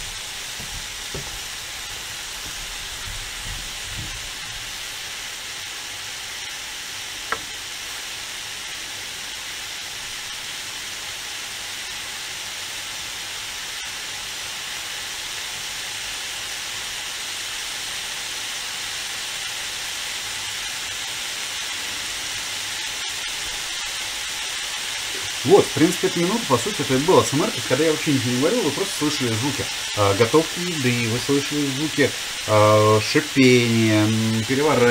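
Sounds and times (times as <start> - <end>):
vegetables sizzling in a pan: 0.0 - 34.9.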